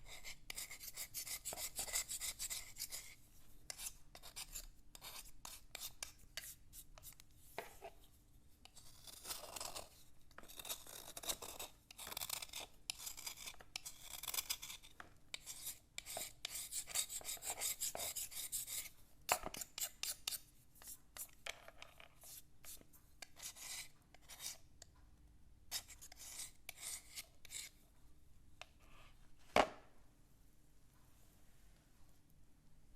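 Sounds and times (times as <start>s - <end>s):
slate pencil scratching: 0.0s - 8.0s, 8.6s - 24.6s, 25.7s - 27.8s.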